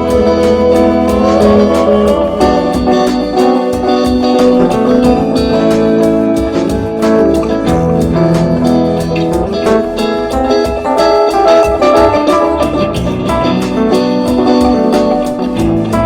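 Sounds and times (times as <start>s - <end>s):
instrumental guitar jam: 0.0s - 16.0s.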